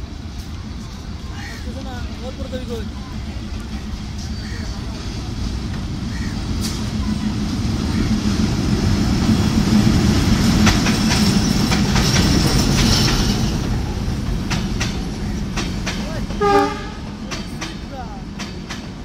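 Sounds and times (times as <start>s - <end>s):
diesel locomotive engine rumble: 0.0s - 19.0s.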